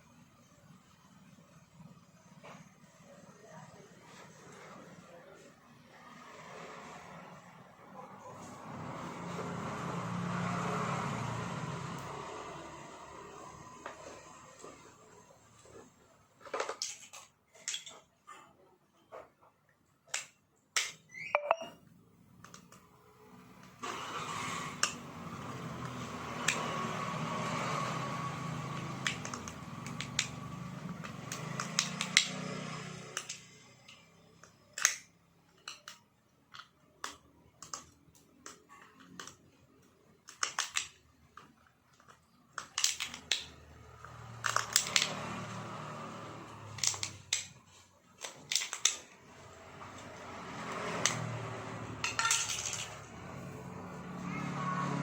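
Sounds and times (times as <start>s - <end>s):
metal tools clinking: 52.0s - 53.0s.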